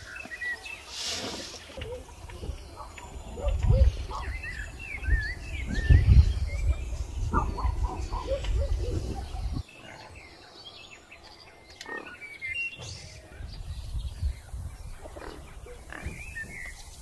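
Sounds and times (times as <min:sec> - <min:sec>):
birds chirping: 0:00.0 - 0:17.0
wind rumble on microphone: 0:01.8 - 0:09.7, 0:13.1 - 0:17.0.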